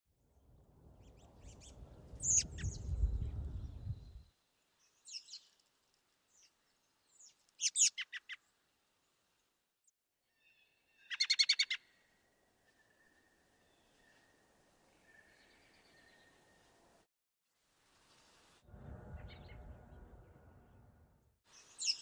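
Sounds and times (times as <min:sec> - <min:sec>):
low rumble: 0:18.6 - 0:21.4.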